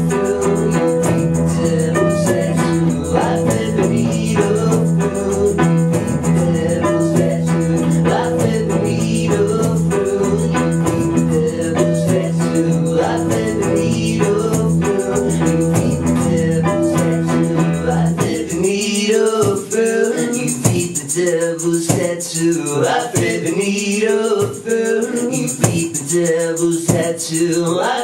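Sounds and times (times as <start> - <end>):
low bass line: 0.0 - 18.1
live rock band playing: 0.0 - 18.5.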